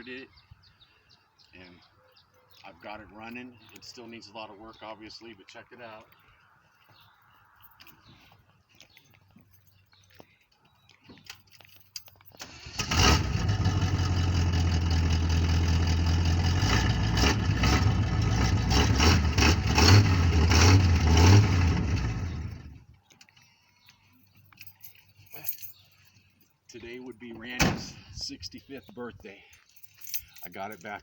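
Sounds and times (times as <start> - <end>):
truck engine revving: 12.4 - 22.8
truck engine starting and running: 12.4 - 22.9.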